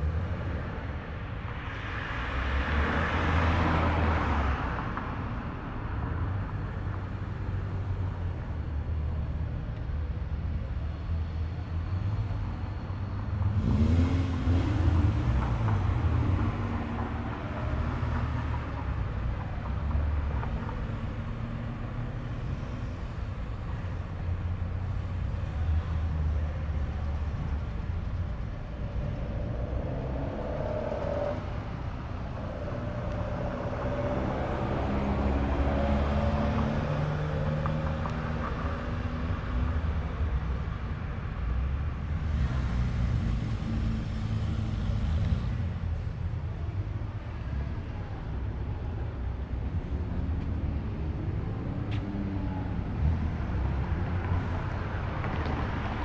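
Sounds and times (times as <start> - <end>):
cars rolling by slowly: 0.0 - 56.0.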